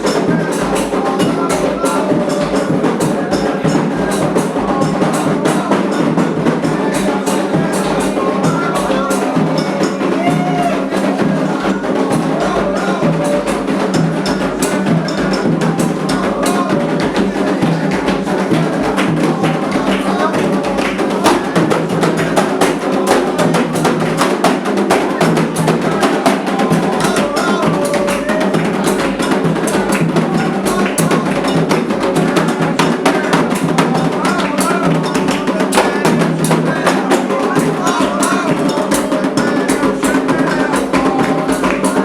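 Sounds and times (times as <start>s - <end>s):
dense drumming: 0.0s - 42.0s
voices singing: 0.0s - 42.0s.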